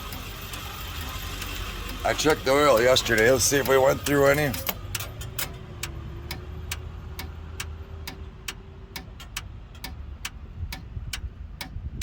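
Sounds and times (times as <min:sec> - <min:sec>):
sharp ticking clicks: 0:00.0 - 0:12.0.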